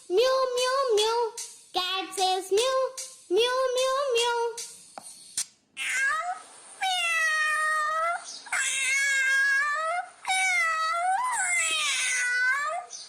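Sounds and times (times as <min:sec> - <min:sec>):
cat meowing: 0:05.8 - 0:12.9.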